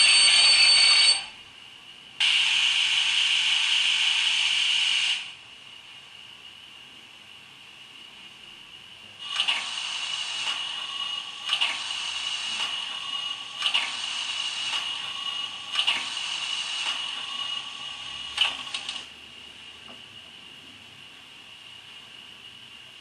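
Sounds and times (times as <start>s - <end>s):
steam locomotive hiss with whistle tone: 0.0s - 1.4s, 2.2s - 5.4s, 9.3s - 18.1s
steam locomotive chuffing beat: 2.2s - 4.9s, 9.2s - 18.8s.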